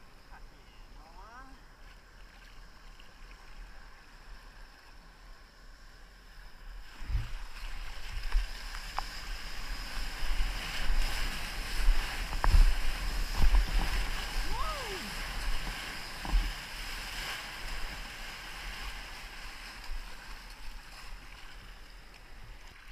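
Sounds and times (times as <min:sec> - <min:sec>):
water washing around kayak: 0:00.0 - 0:22.9
rushing whitewater: 0:07.3 - 0:22.9
knocks and splashes against boat: 0:15.6 - 0:18.0.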